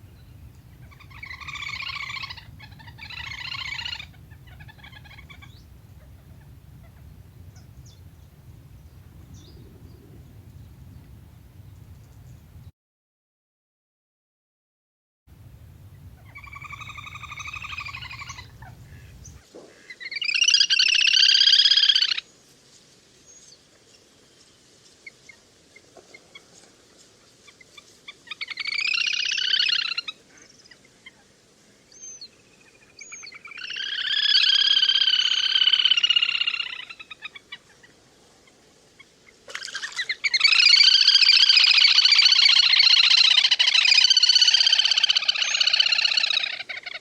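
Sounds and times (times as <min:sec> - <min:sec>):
low hum: 0:00.0 - 0:12.7, 0:15.3 - 0:19.4.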